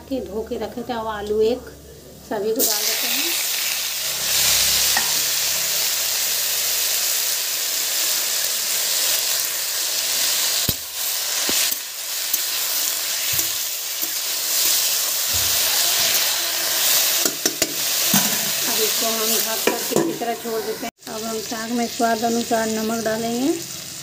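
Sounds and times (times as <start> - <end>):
vegetables sizzling in oil: 2.5 - 24.0.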